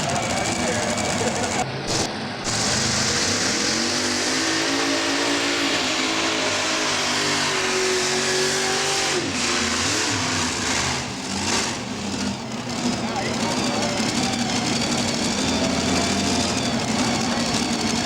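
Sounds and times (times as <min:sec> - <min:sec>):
tractor engine at full throttle: 0:00.0 - 0:18.0.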